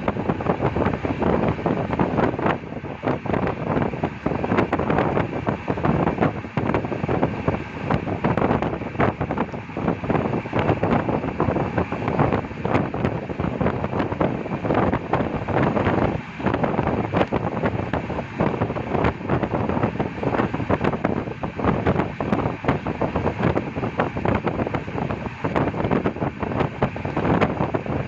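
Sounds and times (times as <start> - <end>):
train carriage running noise: 0.0 - 28.0
wind rushing over microphone: 0.0 - 28.0.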